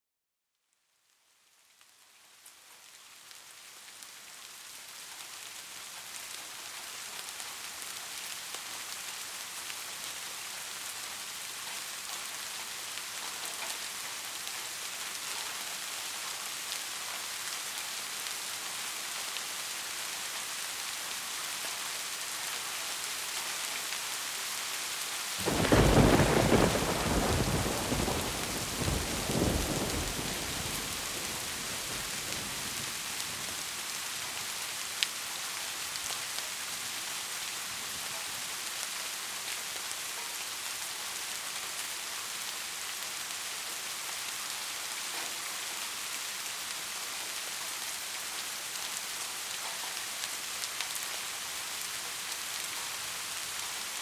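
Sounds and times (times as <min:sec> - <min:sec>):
steady rain: 0:01.0 - 0:54.0
thunderclap rumbling: 0:25.4 - 0:32.8.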